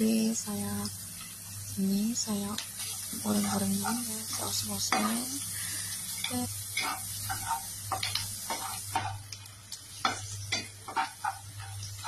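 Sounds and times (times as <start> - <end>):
food sizzling in hot oil: 0.0 - 12.0
spatula scraping a wok: 2.8 - 9.2, 10.0 - 12.0.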